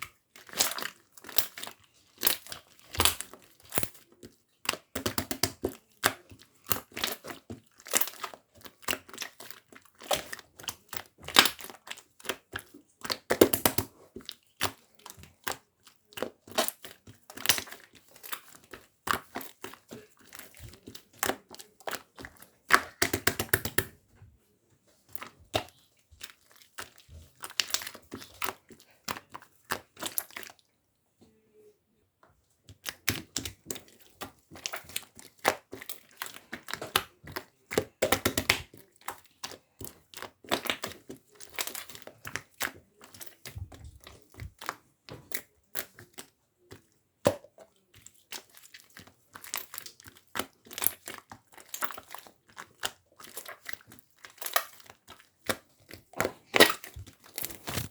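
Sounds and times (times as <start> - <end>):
slime squished by hand: 0.0 - 4.0, 25.1 - 30.6, 32.8 - 57.9.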